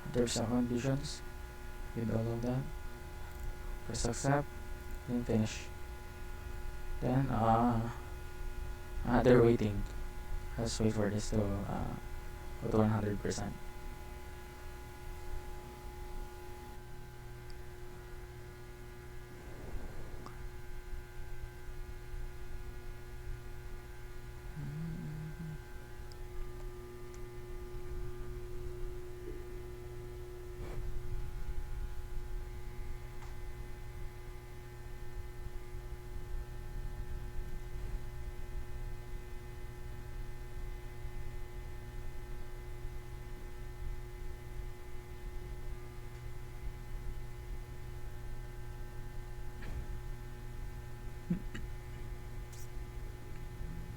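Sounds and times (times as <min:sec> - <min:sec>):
faint whining tones: 0:00.0 - 0:41.5
electrical hum: 0:00.0 - 0:53.9
low rumble: 0:19.2 - 0:21.0.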